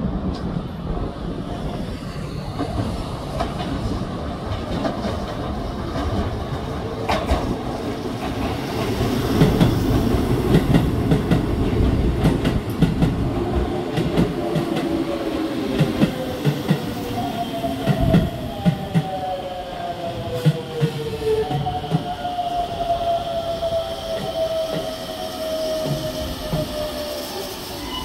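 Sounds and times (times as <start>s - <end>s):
train rumble: 0.0s - 19.4s.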